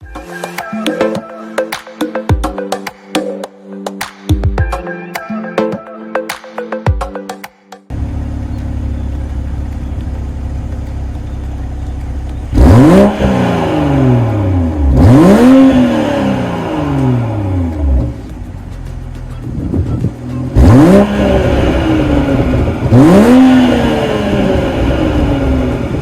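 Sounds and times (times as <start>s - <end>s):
car engine idling: 7.9s - 26.0s
car engine revving: 7.9s - 26.0s.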